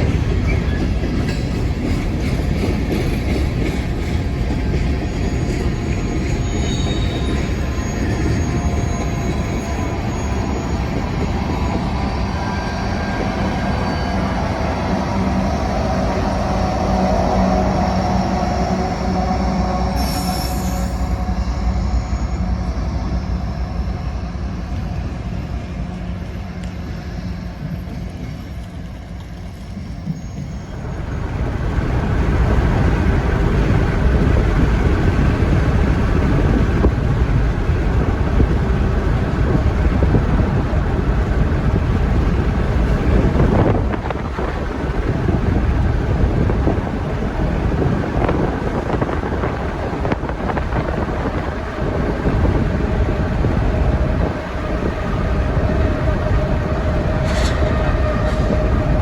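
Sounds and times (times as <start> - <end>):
diesel locomotive engine hum: 0.0 - 59.0
rumbling train noise: 0.0 - 59.0
wind rush: 30.7 - 59.0.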